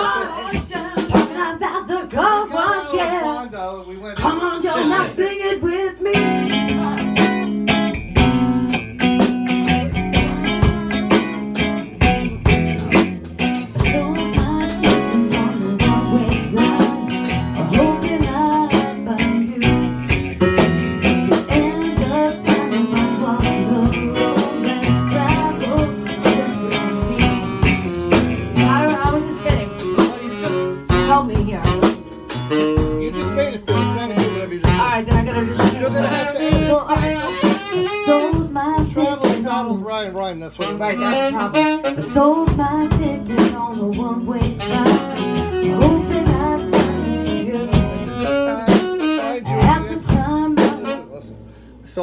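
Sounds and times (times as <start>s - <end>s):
band playing blues rock: 6.0s - 39.8s, 40.6s - 51.3s.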